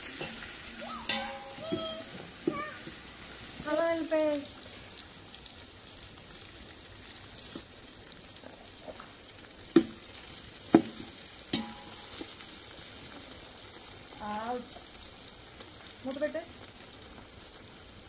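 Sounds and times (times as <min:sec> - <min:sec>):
food sizzling in hot oil: 0:00.0 - 0:18.0
sharp knocks with metallic ring: 0:11.6 - 0:12.0.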